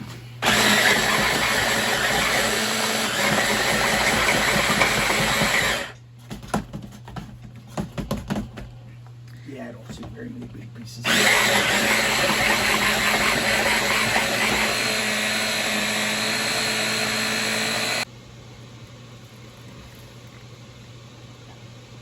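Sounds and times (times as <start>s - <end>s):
electric blender grinding: 0.4s - 6.0s, 11.0s - 18.1s.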